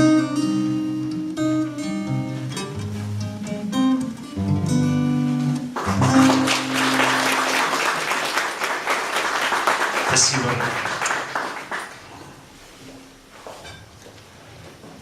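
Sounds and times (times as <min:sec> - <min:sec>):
acoustic guitar chords: 0:00.0 - 0:08.6
audience applauding: 0:05.7 - 0:12.2.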